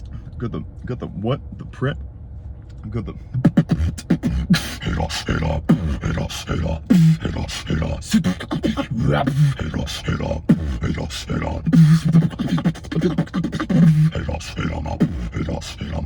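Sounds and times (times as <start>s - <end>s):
beatboxing: 3.4s - 16.0s.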